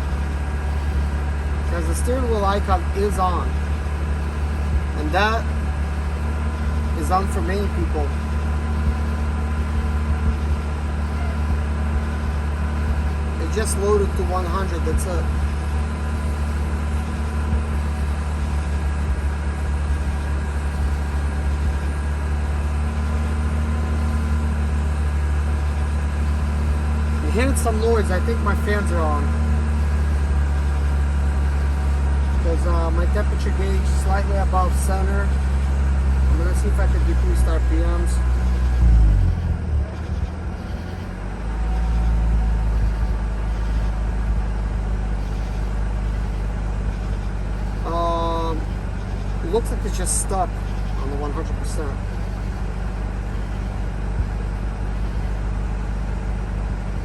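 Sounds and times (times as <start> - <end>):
rotary engine running: 0.0 - 57.0.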